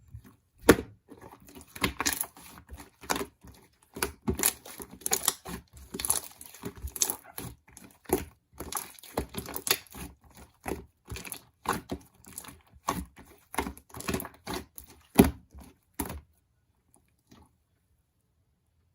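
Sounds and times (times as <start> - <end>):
slime squishing with sticky clicks: 0.6 - 16.3.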